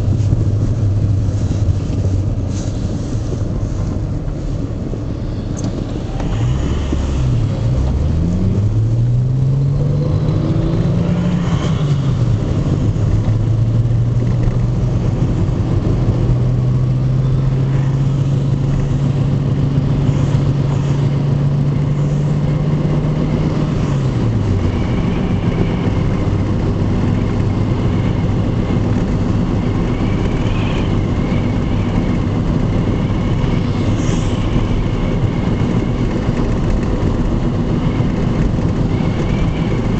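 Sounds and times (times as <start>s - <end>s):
car engine while driving: 0.0s - 39.9s.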